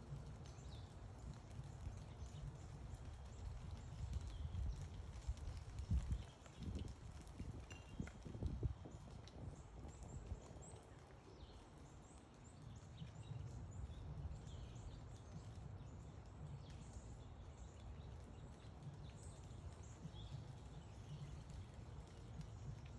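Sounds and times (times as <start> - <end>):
songbirds chirping: 8.7 - 22.9.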